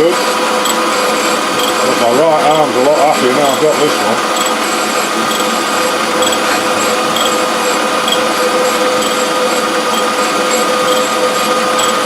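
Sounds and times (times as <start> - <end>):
grinder hum and whine: 0.0 - 12.0
faint high ticks: 5.3 - 5.5, 6.2 - 6.4, 7.2 - 7.4, 9.0 - 9.2, 11.8 - 12.0.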